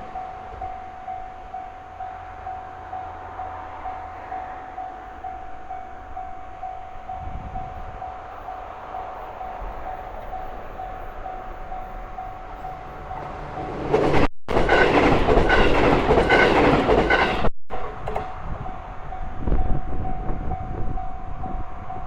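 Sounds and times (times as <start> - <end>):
train passing: 0.0 - 22.0
wheels clicking over rail joints: 11.4 - 18.6.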